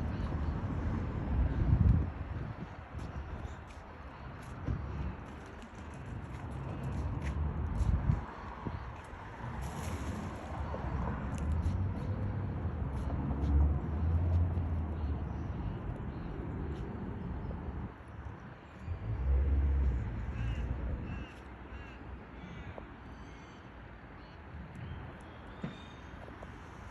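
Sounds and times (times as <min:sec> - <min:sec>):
harsh caw-like bird calls: 0:20.2 - 0:23.6.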